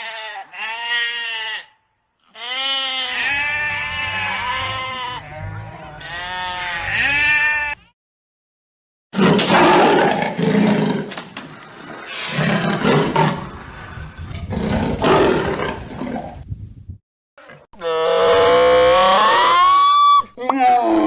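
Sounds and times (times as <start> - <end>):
large animal roaring: 12.1 - 16.4.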